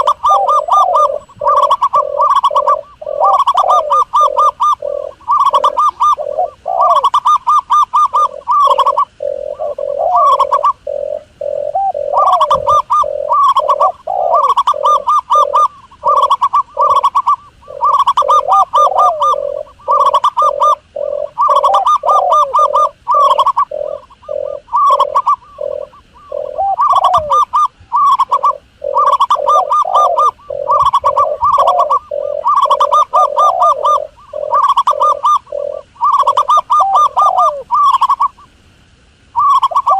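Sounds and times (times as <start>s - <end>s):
doves cooing in trilled phrases: 0.0s - 39.9s.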